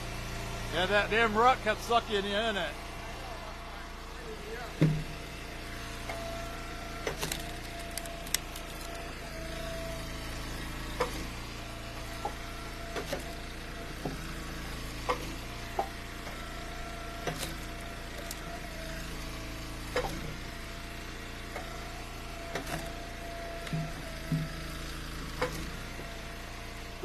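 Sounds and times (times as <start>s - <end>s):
wood splitter engine running: 0.0s - 27.0s
firewood cracking and dropping: 7.2s - 9.0s.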